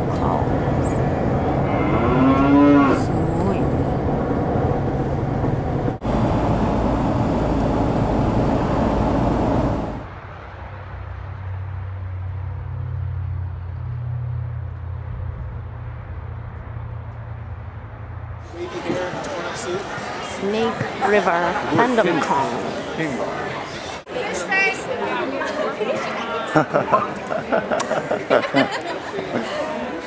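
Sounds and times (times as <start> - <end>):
steady low hum: 0.0 - 10.2
car road noise: 0.0 - 24.1.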